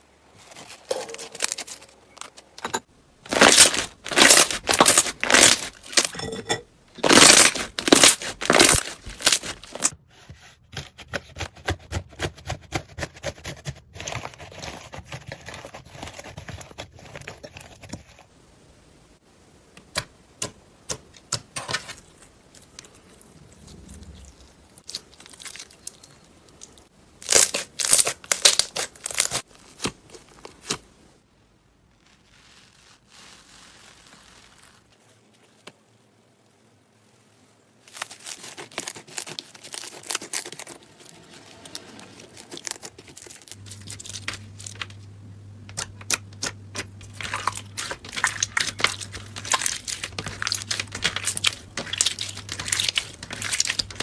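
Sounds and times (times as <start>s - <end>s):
slime crackling when squeezed: 3.3s - 6.1s, 7.0s - 9.9s, 46.1s - 54.0s.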